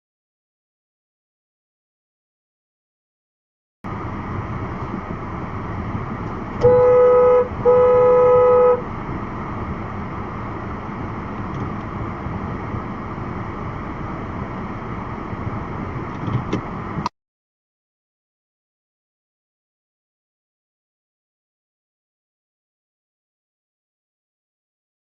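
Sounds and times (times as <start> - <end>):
car driving on road hum: 3.9 - 17.1
car horn honking: 6.6 - 8.9.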